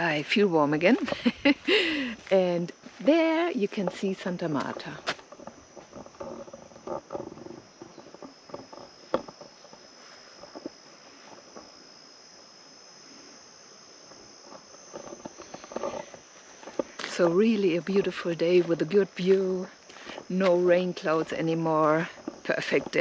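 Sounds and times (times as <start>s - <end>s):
insect chorus: 0.0s - 23.0s
faint knocks and rustles: 3.6s - 11.8s, 14.0s - 23.0s.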